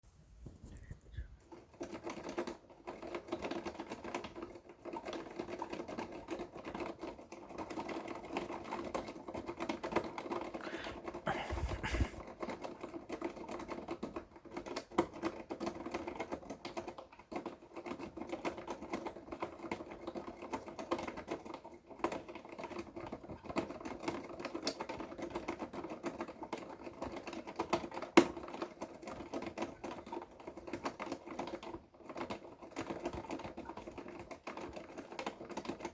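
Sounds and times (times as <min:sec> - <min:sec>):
electric fan hum: 0:10.6 - 0:12.2.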